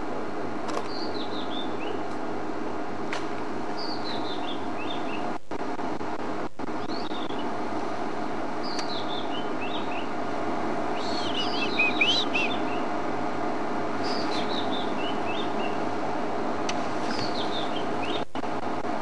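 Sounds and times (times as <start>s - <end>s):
steady low hum: 0.0s - 19.0s
robin singing: 0.8s - 2.1s, 3.7s - 5.4s, 6.8s - 7.6s, 8.6s - 10.2s, 10.9s - 13.0s, 14.0s - 15.9s, 17.0s - 18.3s.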